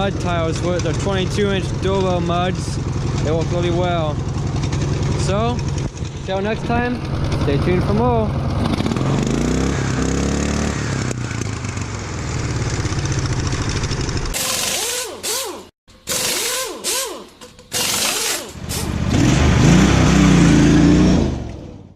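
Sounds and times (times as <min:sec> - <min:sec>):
lawn tractor engine running: 0:00.0 - 0:19.7.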